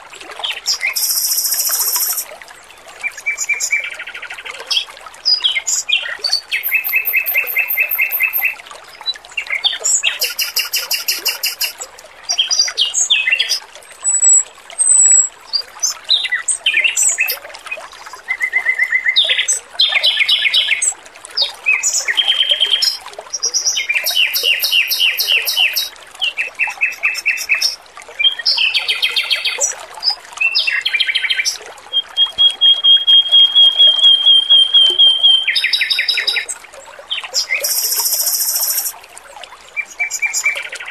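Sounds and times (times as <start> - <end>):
trickle of running water: 0.0 - 40.9
bird singing high trills: 0.9 - 2.3, 6.6 - 8.5, 10.2 - 11.7, 14.0 - 15.3, 31.5 - 36.5, 37.6 - 38.9.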